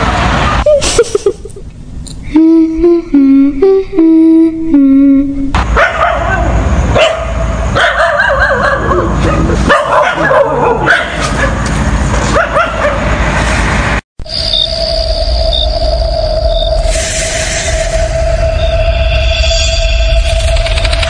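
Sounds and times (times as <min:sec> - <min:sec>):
dogs whimpering and barking: 0:07.8 - 0:11.6
low rumble: 0:13.2 - 0:21.0
eerie drone: 0:13.6 - 0:21.0.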